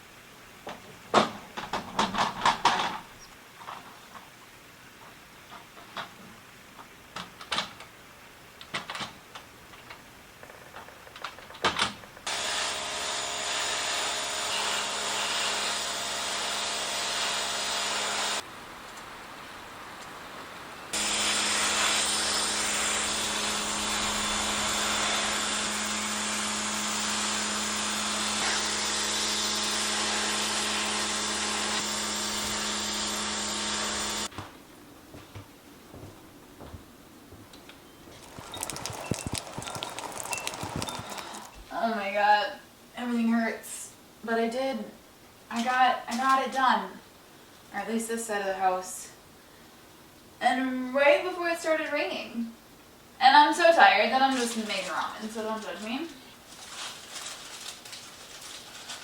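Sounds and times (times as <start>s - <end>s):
pressure washer spraying: 21.0s - 34.3s.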